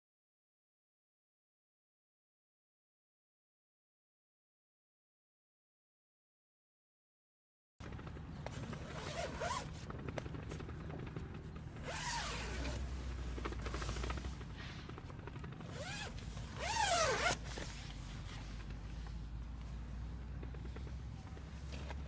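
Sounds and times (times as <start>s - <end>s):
zipper being drawn: 8.8s - 9.7s, 11.8s - 14.2s, 15.7s - 18.4s.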